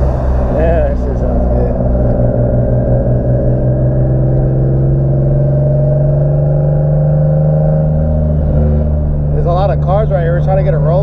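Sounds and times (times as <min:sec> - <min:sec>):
car engine under load: 0:00.0 - 0:11.0.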